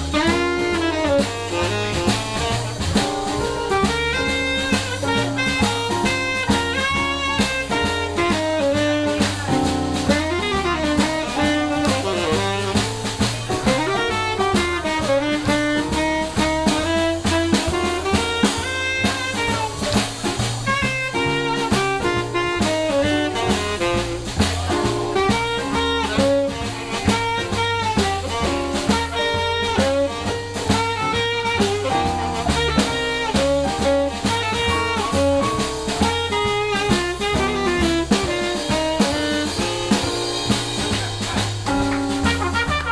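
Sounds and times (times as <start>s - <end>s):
bass: 0.0s - 42.9s
drum kit: 0.0s - 42.9s
saxophone lead: 0.0s - 42.9s.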